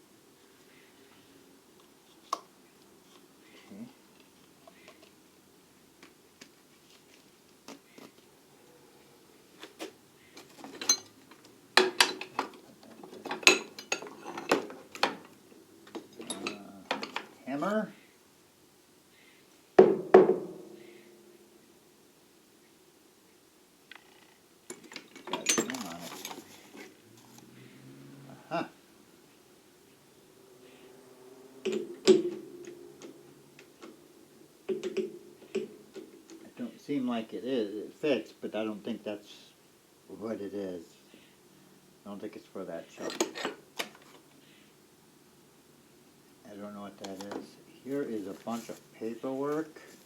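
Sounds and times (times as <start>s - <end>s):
metal tools clinking in a drawer: 10.4s - 11.2s, 11.8s - 17.4s, 24.7s - 26.9s, 43.0s - 43.6s.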